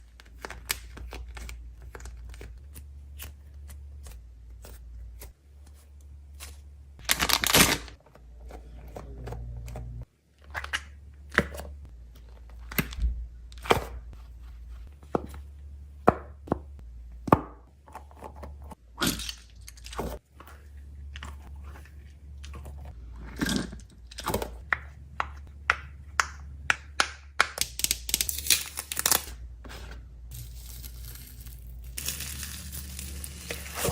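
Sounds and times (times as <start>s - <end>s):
low hum: 8.2s - 10.1s.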